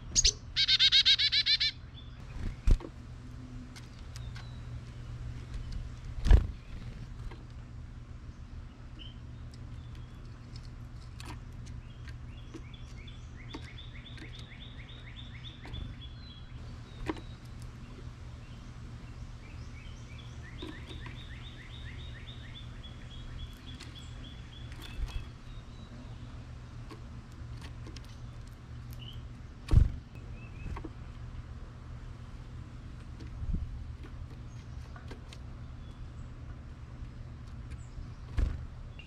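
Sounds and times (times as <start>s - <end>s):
songbird trilling: 0.0s - 2.3s, 19.4s - 26.2s.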